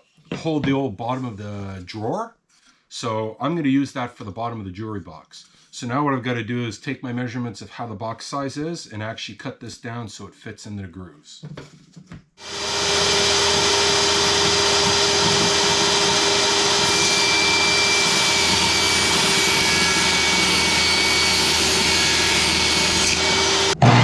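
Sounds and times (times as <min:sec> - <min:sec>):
power saw cutting wood: 0:12.4 - 0:24.0.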